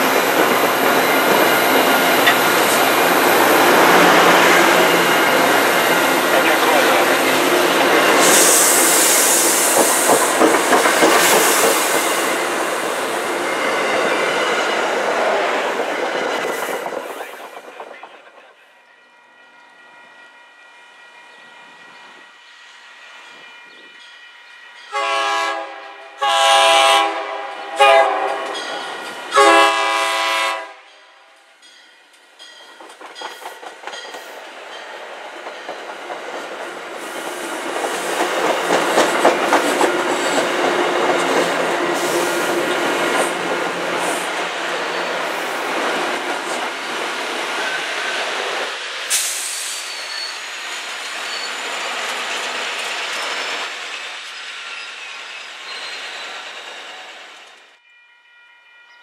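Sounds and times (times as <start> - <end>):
train rumble and wheel clatter: 0.0 - 57.8
train horn blasts: 24.9 - 28.6, 29.3 - 31.4.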